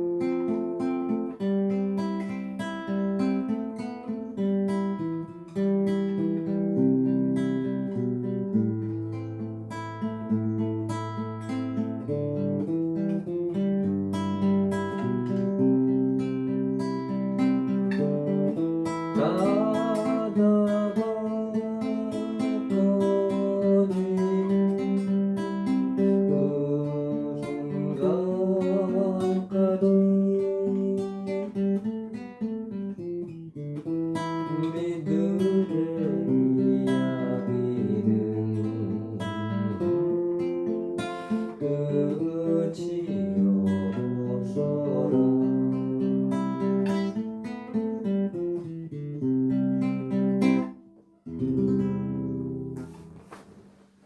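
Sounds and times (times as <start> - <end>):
acoustic guitar chords: 0.0 - 54.0.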